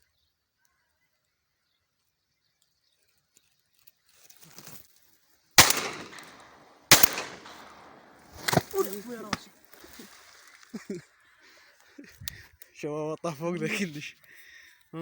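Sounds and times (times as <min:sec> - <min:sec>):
shotgun shots: 0:05.6 - 0:09.5.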